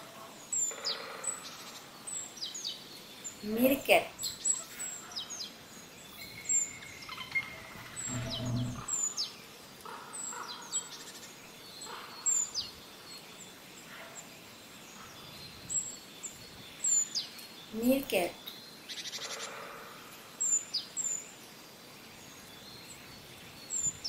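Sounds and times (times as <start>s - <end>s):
small birds chirping: 0.0s - 24.0s
low rumble: 7.8s - 9.0s.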